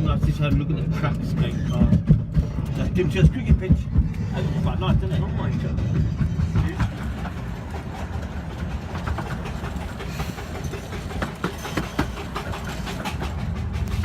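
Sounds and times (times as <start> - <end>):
railway carriage rumbling: 0.0 - 14.0
wheels clicking on track: 0.0 - 14.0.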